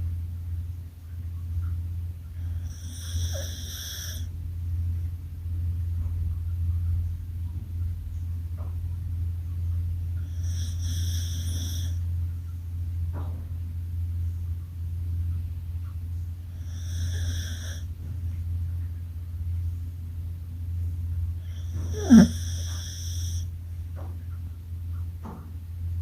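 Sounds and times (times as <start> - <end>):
steady low hum: 0.0 - 26.0
dog snoring: 2.4 - 4.3, 10.2 - 12.1, 16.5 - 17.9, 21.4 - 23.5.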